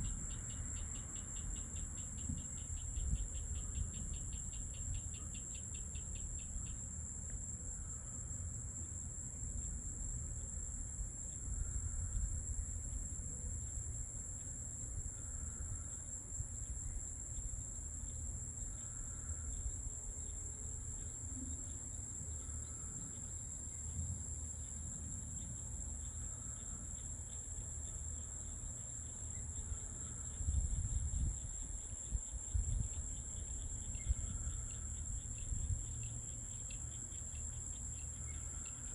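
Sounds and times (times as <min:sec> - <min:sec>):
high-pitched chorus of night insects: 0:00.0 - 0:38.9
fast pulsing insect trill: 0:14.4 - 0:38.9.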